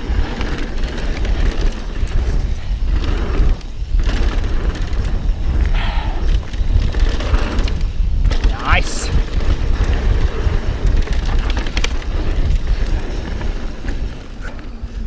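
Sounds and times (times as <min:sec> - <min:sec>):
bike rattling: 0:00.0 - 0:15.0
bike tyres over dirt and rock: 0:00.0 - 0:15.0
wind rumble on microphone: 0:00.0 - 0:15.0.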